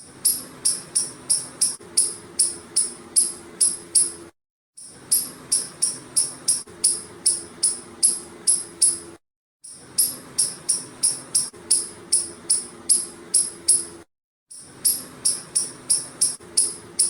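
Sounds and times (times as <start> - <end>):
squirrel chirping: 5.1 - 9.0, 10.0 - 13.9, 14.8 - 17.0.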